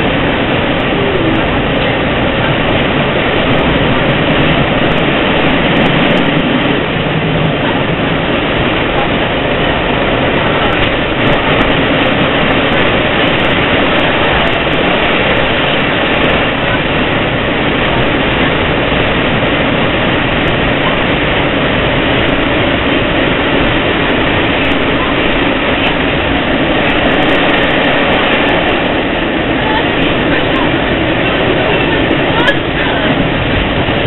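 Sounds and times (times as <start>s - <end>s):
train running inside passenger car: 0.0s - 34.0s.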